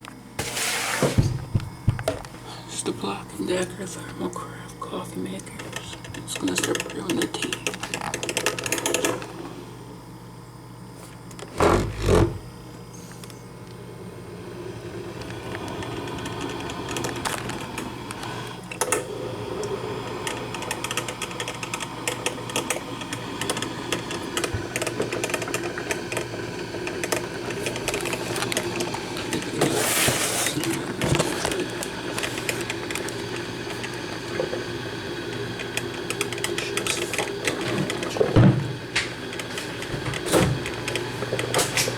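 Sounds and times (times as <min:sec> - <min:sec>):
thump: 0:01.0 - 0:01.7
coffee maker sputtering: 0:04.8 - 0:09.9, 0:11.2 - 0:41.9.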